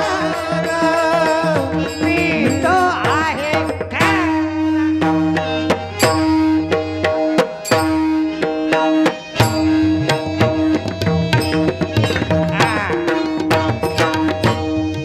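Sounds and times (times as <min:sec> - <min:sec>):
tabla playing quick rhythm: 0:00.0 - 0:15.0
sustained melody notes: 0:04.4 - 0:15.0.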